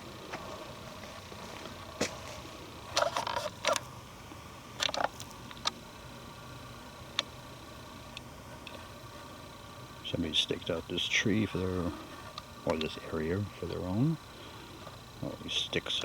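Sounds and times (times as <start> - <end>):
twigs and leaves crackling underfoot: 0.2 - 4.0.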